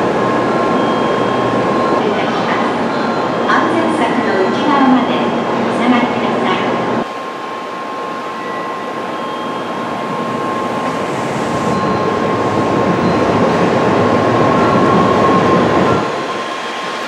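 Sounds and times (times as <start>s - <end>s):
train running noise: 0.0s - 17.0s
steady high tone: 7.0s - 17.0s.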